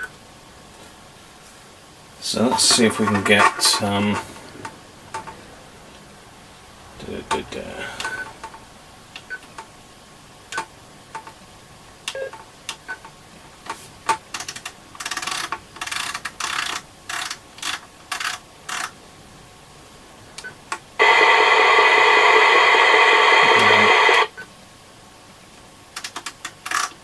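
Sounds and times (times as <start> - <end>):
receiver hiss: 0.0 - 27.0
bursts of radio static: 2.2 - 5.3, 21.0 - 24.4.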